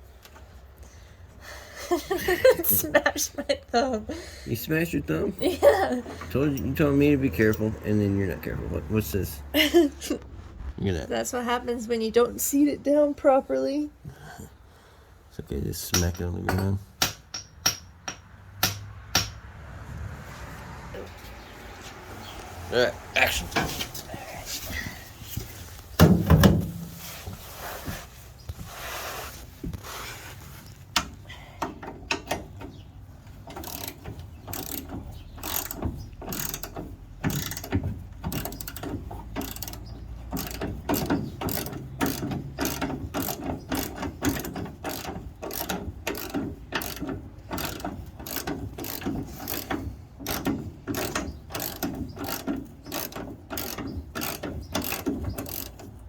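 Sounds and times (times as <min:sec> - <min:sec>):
hand ratchet clicking: 0:31.0 - 0:56.0.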